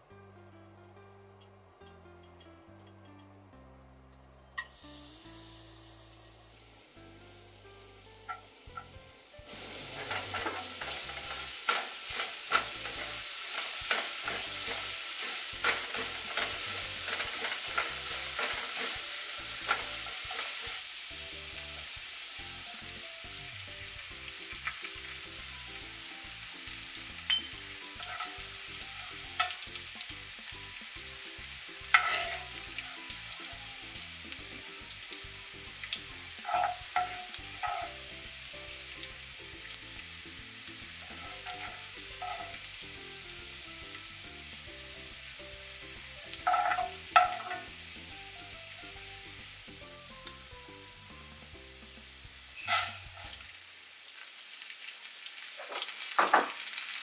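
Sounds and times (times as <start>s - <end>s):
ginger and garlic sizzling in oil: 4.6s - 57.0s
utensil clicking against pan: 10.0s - 19.0s, 41.0s - 42.7s.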